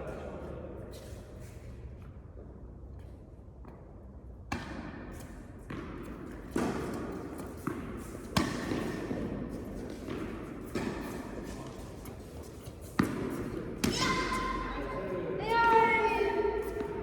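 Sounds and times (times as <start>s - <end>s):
tennis ball hits and bounces: 4.5s - 12.2s, 12.8s - 14.7s.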